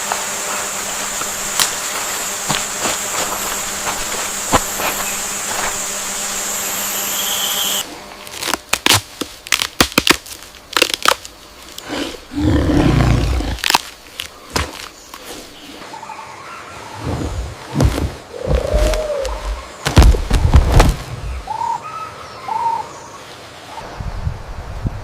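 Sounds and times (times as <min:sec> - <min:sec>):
high whine: 0:00.0 - 0:08.6
insect buzzing: 0:00.0 - 0:09.6, 0:10.3 - 0:15.9, 0:17.0 - 0:21.5.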